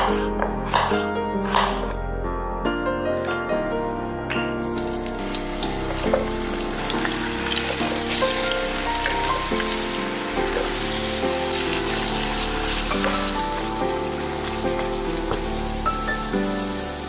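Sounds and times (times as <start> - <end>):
instrumental music: 0.2 - 17.0
food sizzling in a pan: 4.6 - 17.0.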